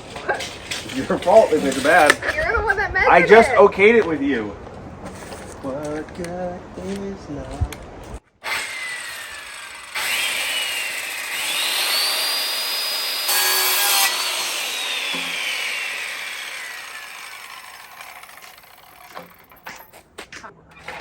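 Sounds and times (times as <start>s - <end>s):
electric saw cutting wood: 8.4s - 19.5s.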